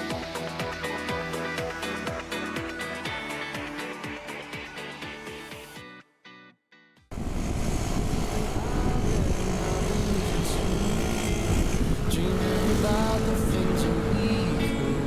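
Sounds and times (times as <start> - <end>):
motorcycle engine running: 7.1 - 15.0
road and wind noise: 7.1 - 15.0.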